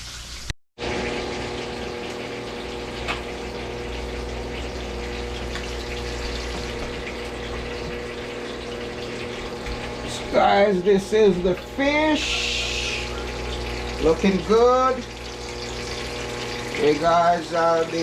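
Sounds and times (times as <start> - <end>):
fish sizzling in hot oil: 11.7 - 18.0.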